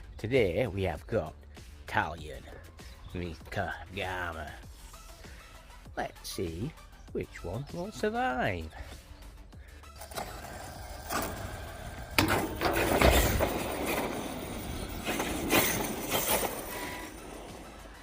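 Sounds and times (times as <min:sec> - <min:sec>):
toy truck motor and tyre noise: 0:09.6 - 0:18.0.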